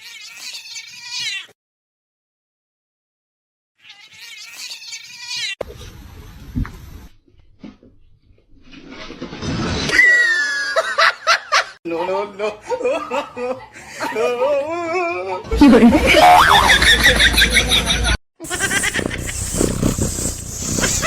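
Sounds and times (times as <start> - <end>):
cat meowing: 18.4 - 21.0
scuffling noise: 18.4 - 21.0.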